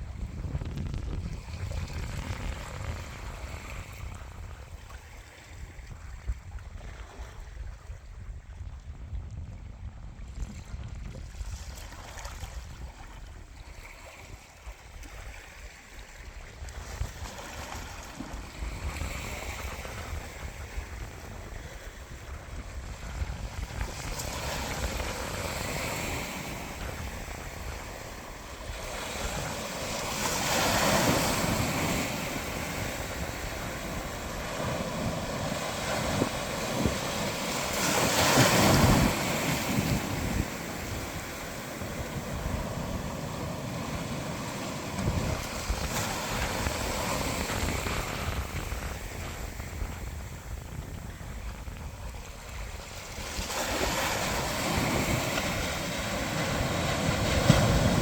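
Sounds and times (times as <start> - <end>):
wind buffeting microphone: 0.0 - 58.0
ocean waves surf: 17.2 - 58.0.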